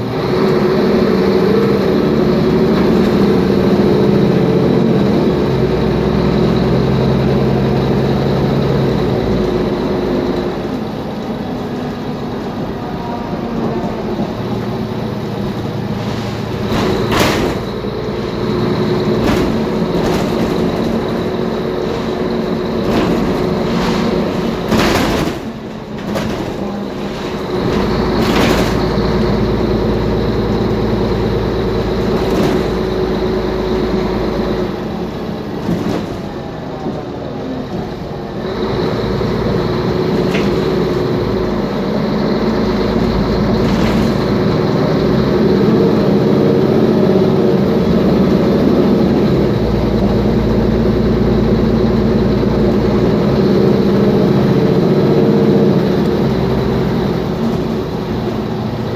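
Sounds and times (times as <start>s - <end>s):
bus diesel engine running: 0.0s - 58.9s
loose parts knocking and rattling: 15.4s - 29.8s.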